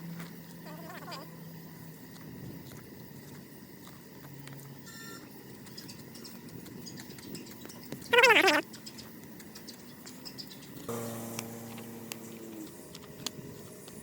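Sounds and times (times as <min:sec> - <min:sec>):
short animal cry: 0:08.1 - 0:08.6.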